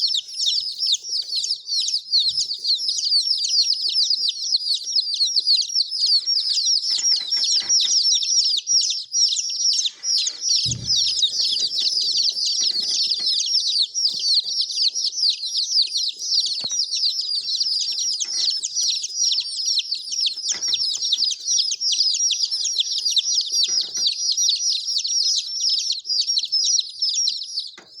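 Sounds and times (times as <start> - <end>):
baby chicks peeping: 0.0 - 28.0
dull thump: 10.7 - 11.8.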